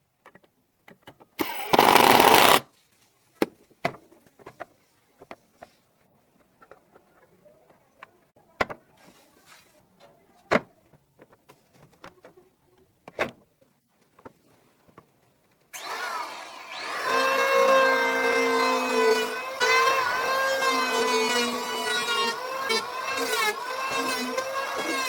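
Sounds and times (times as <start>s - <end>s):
power tool whining: 1.4s - 2.6s, 15.8s - 25.0s.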